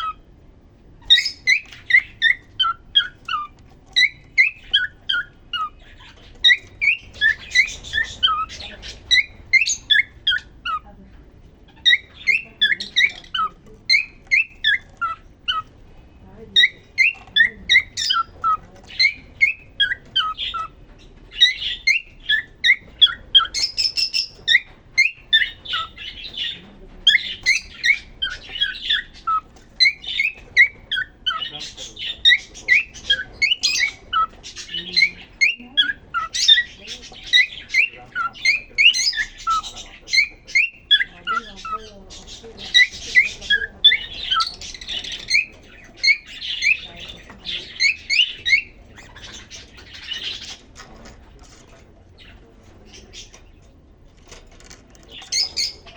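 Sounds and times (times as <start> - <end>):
cockatiel whistling song: 1.0 - 10.8, 11.8 - 15.7, 16.6 - 20.7, 21.4 - 26.0, 27.1 - 31.5, 32.2 - 36.7, 37.3 - 41.8, 47.8 - 49.2.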